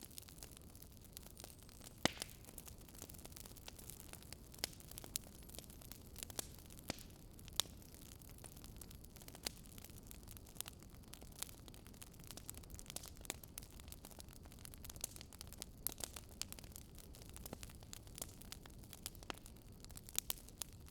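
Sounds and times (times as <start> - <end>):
fire crackling and popping: 0.0 - 20.9
low rumble of flame: 0.0 - 20.9.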